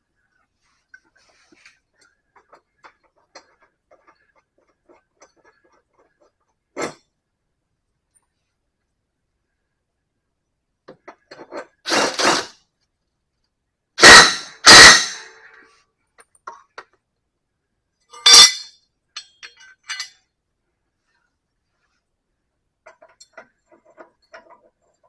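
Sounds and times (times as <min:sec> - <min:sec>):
metal tools clanking: 0:18.1 - 0:20.3.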